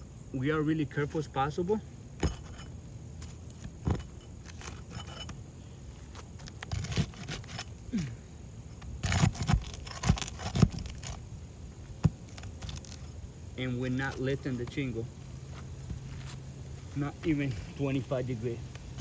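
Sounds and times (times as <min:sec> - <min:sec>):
metal tool clicking and scraping: 0:02.2 - 0:05.4, 0:06.0 - 0:07.9.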